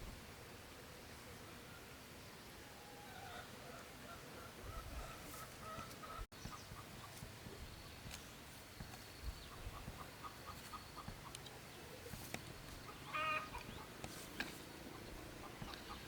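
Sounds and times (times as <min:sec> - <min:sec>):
chicken call: 0:13.1 - 0:13.6.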